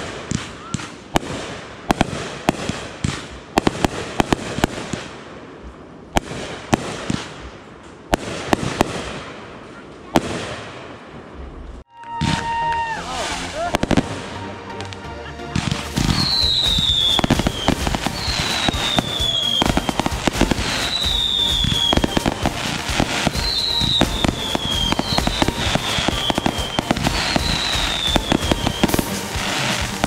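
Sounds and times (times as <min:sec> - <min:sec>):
fireworks crackling and popping: 0:00.0 - 0:30.0
firework whistle falling in pitch: 0:11.9 - 0:14.0, 0:16.0 - 0:30.0.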